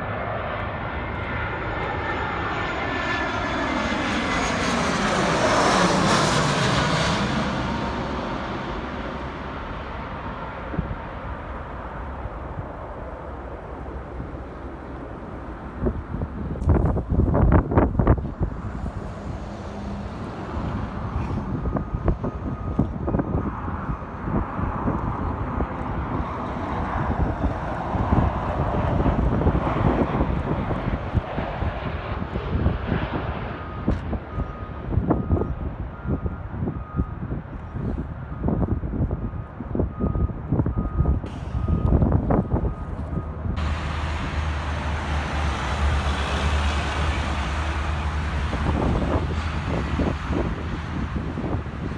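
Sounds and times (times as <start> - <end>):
jet airliner engine rumble: 0.0 - 51.9
wind buffeting microphone: 0.0 - 51.9
jet engine high hiss: 43.6 - 51.2.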